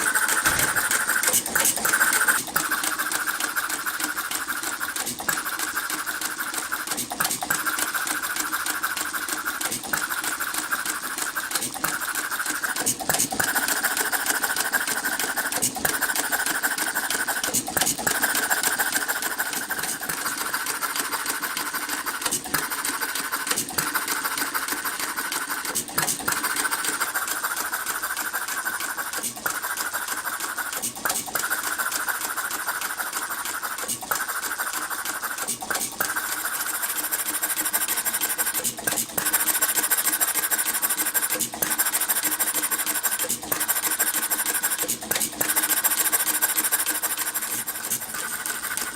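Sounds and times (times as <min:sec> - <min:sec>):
hit-and-miss engine clatter: 0:00.0 - 0:02.9.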